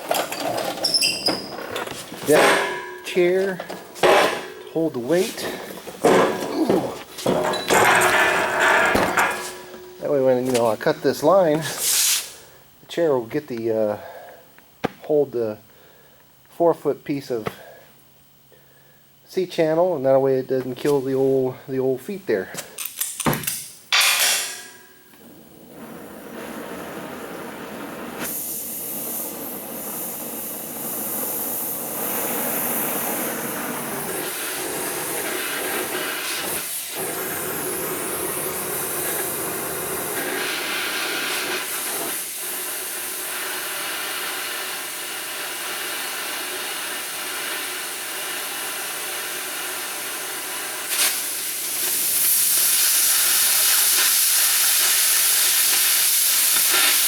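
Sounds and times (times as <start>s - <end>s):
cutting torch hissing: 0.0s - 12.5s, 25.2s - 57.0s.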